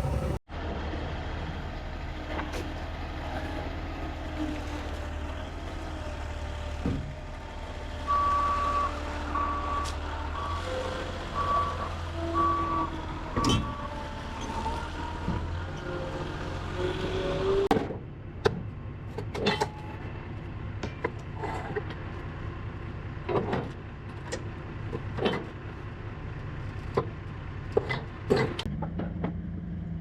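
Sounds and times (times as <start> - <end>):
diesel engine idling: 0.0 - 17.0
reversing alarm beeping: 8.1 - 14.6.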